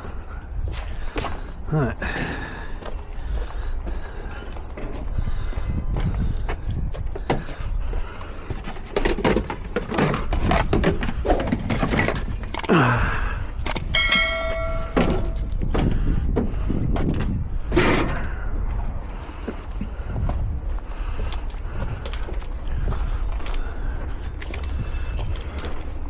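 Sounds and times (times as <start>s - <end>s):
tools and metal parts clattering: 8.5s - 12.8s, 13.5s - 15.9s
steady low rumble: 12.2s - 26.0s
metallic ring: 13.9s - 15.6s.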